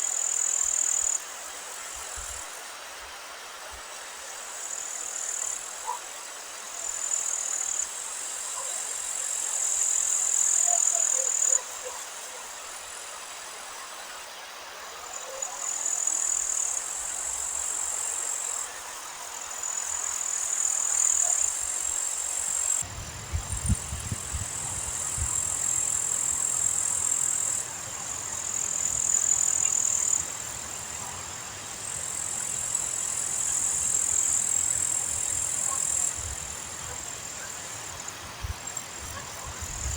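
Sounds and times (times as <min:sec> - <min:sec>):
insects trilling: 0:00.0 - 0:39.9
wind buffeting microphone: 0:22.8 - 0:29.1, 0:38.0 - 0:39.9.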